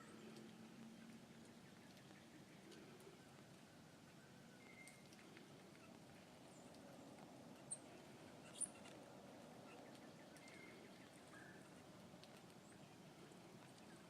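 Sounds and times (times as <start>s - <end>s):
small bird chirping: 7.6s - 9.0s, 9.6s - 11.8s.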